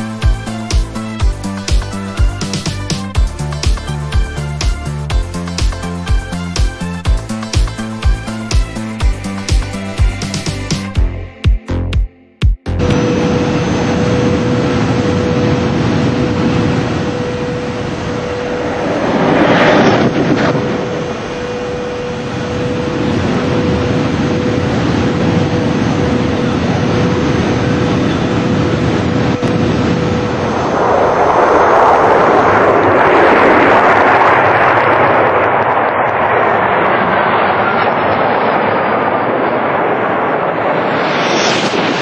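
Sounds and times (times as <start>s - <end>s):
electric train rushing: 12.8s - 35.1s.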